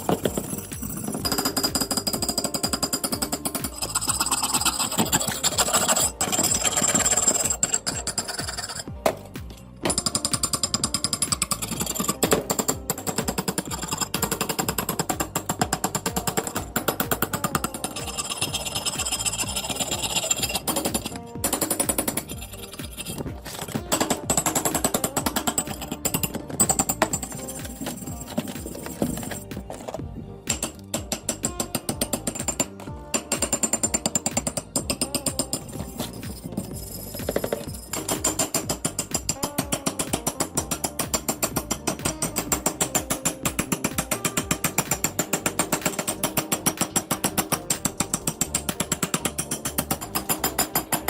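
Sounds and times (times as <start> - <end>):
background music: 0.0 - 51.0
machine pounding: 9.8 - 51.0.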